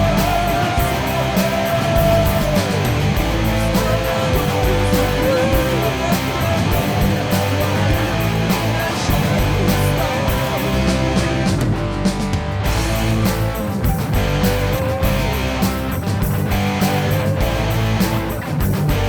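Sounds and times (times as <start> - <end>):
electric guitar lead: 0.0 - 19.0
rock band instrumental: 0.0 - 19.0.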